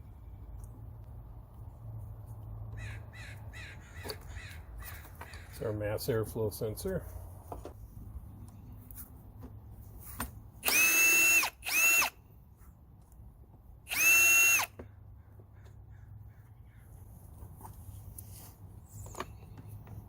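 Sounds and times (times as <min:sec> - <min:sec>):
cordless power drill whining: 0:10.6 - 0:12.2, 0:13.9 - 0:14.8.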